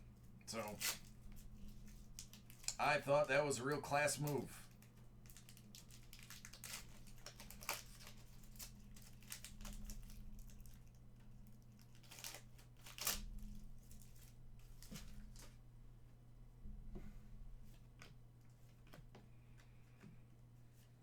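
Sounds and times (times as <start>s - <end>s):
low electrical hum: 0.0s - 21.0s
trading cards rustling: 0.5s - 10.8s, 11.8s - 15.5s.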